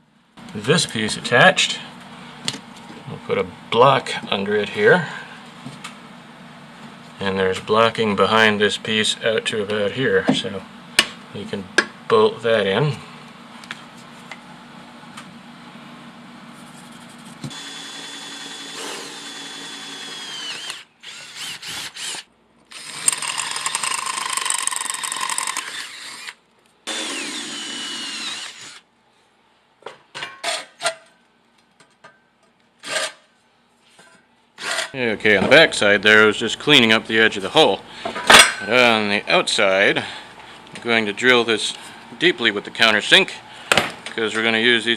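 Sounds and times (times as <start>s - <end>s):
electric drill boring steel: 17.5s - 28.8s.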